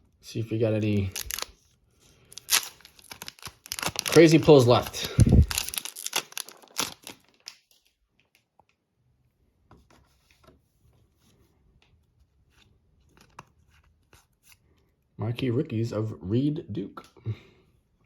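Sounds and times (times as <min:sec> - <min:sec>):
cards rustling and clicking: 0:00.9 - 0:01.6, 0:02.3 - 0:07.6, 0:12.6 - 0:14.6
wrapper tearing and crinkling: 0:00.9 - 0:01.6, 0:02.3 - 0:07.7.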